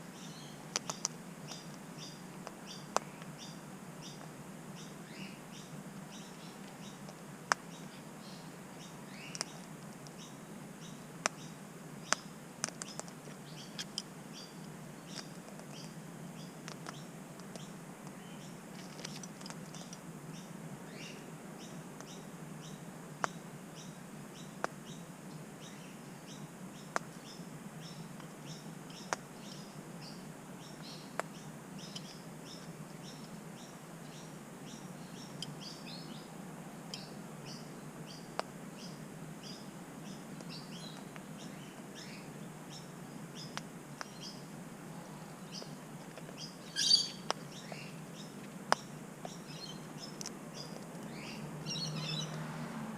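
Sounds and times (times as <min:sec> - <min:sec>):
birds chirping: 0:00.0 - 0:52.9
harsh bird call: 0:46.7 - 0:47.3.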